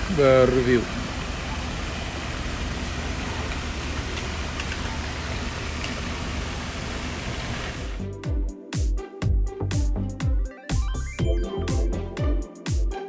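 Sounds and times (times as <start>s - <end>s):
waterfall rushing: 0.0s - 8.0s.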